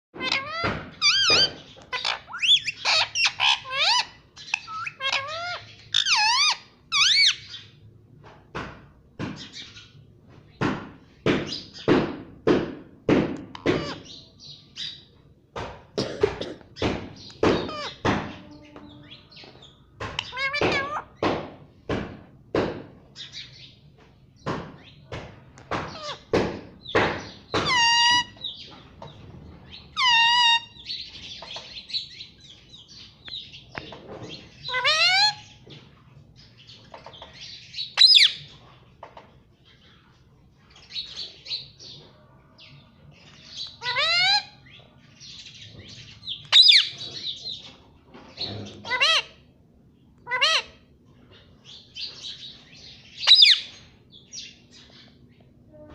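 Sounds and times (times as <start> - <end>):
parrot squawking: 0.2 - 7.5, 13.6 - 14.2, 17.6 - 18.0, 20.2 - 21.1, 25.9 - 26.3, 27.6 - 28.5, 29.9 - 30.9, 34.6 - 35.6, 38.0 - 38.4, 43.6 - 44.6, 46.5 - 47.3, 48.6 - 49.5, 50.2 - 50.9, 53.2 - 53.8
sharp knocks: 10.6 - 14.0, 15.5 - 18.4, 20.0 - 23.0, 24.4 - 27.8.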